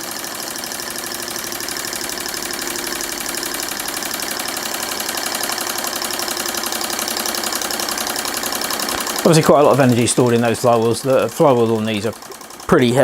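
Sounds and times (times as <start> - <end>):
model steam engine running: 0.0 - 13.0.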